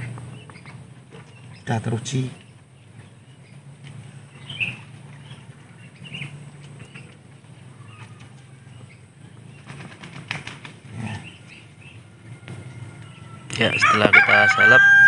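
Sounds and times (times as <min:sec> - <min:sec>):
small birds chirping: 0:00.0 - 0:14.8
low steady hum: 0:00.0 - 0:15.0
quick run of clicks: 0:09.6 - 0:10.8.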